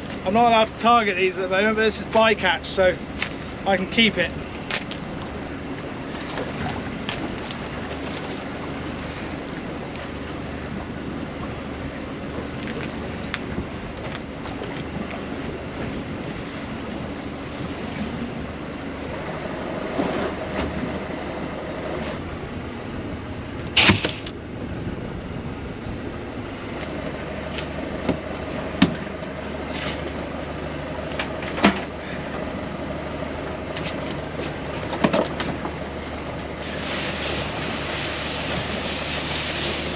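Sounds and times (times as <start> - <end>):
small boat engine running: 0.0 - 39.9
sharp knocks on boat: 28.8 - 29.1.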